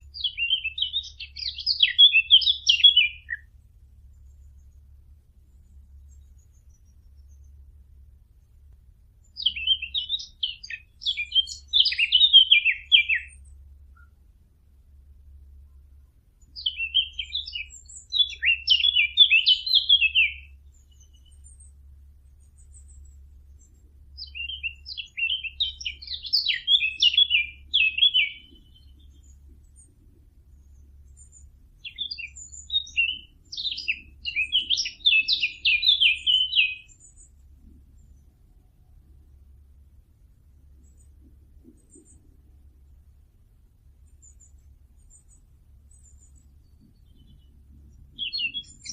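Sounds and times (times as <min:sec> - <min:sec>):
rapid high bird twittering: 0:00.0 - 0:03.5, 0:09.2 - 0:14.2, 0:16.4 - 0:38.3, 0:44.1 - 0:48.9
faint low hum: 0:00.0 - 0:48.9.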